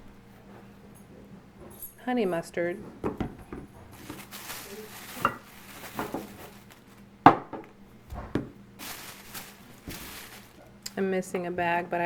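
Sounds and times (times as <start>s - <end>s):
steady rustling: 3.7s - 7.1s, 8.2s - 10.8s
containers knocking and clinking: 5.1s - 6.4s.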